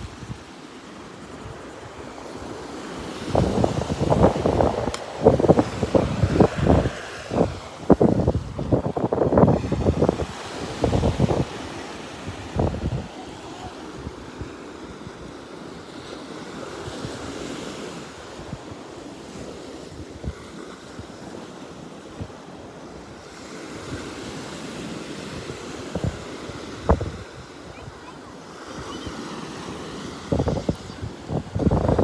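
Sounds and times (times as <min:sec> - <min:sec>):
ocean surf washing on beach: 0:00.0 - 0:32.0
wind buffeting microphone: 0:01.3 - 0:15.3, 0:25.3 - 0:32.0.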